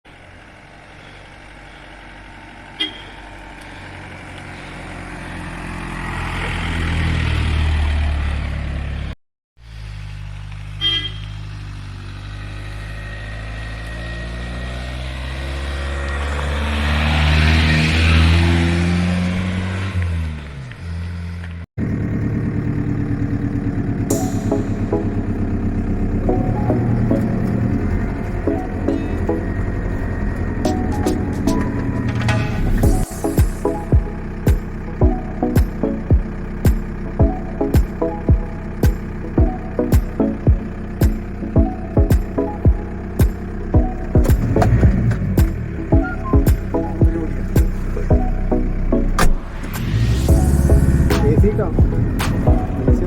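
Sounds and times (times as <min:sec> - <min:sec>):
cars driving past: 0:00.1 - 0:53.0
short horn toots: 0:02.8 - 0:03.2, 0:10.8 - 0:11.4
engine throbbing close by: 0:21.8 - 0:53.0.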